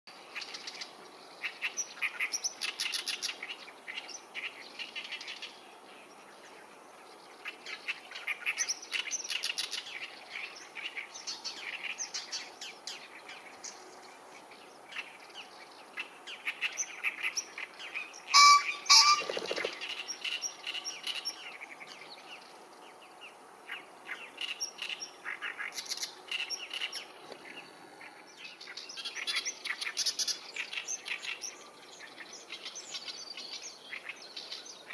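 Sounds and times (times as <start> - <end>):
small songbirds chirping: 0.1 - 34.9
pheasant wing drumming whirr: 17.7 - 24.3
pheasant two-note crowing call: 18.3 - 19.4.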